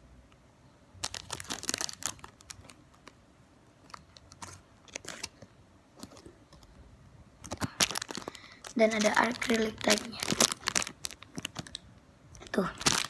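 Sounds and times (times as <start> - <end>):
hands handling squishy toy: 3.8 - 6.8, 7.4 - 11.8.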